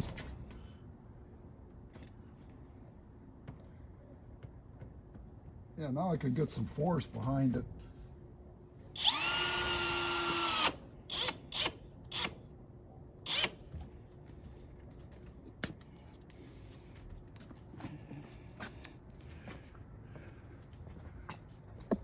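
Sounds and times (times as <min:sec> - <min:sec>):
power drill driving a screw: 0:09.0 - 0:12.4, 0:13.3 - 0:13.6.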